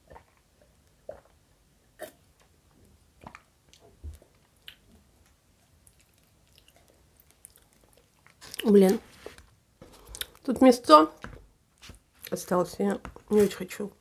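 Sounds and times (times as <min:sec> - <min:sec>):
chewing and swallowing: 0:00.0 - 0:01.4, 0:03.2 - 0:08.8, 0:10.0 - 0:10.5.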